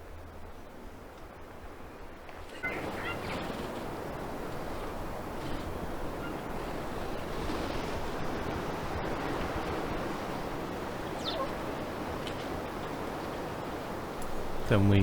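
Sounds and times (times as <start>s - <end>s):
ocean surf on beach: 0.0s - 15.0s
high falling bird chirp: 11.2s - 11.6s.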